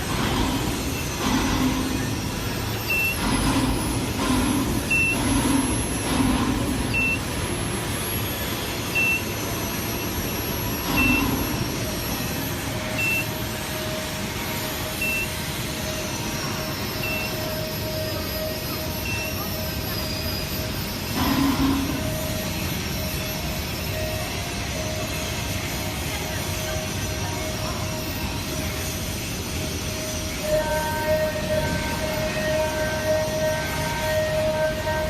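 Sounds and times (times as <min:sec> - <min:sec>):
machinery and site noise: 0:00.0 - 0:35.0
steady hum: 0:00.0 - 0:35.0
short high electronic beep: 0:02.8 - 0:03.7, 0:04.8 - 0:05.6, 0:06.8 - 0:07.4, 0:08.9 - 0:12.2, 0:12.9 - 0:13.4, 0:14.9 - 0:15.4, 0:16.4 - 0:25.3.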